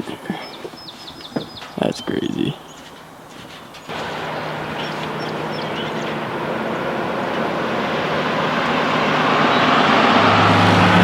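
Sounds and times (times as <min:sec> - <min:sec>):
faint bird chirps: 0:00.3 - 0:06.2
vehicle tyre and road noise: 0:00.7 - 0:11.0.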